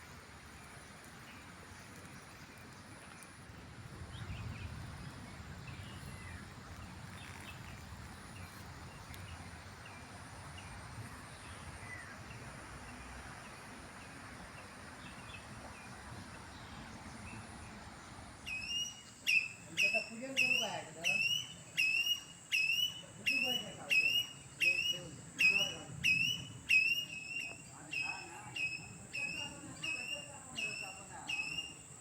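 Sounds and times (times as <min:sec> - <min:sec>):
background hiss: 0:00.0 - 0:32.0
bird chirps: 0:18.4 - 0:32.0.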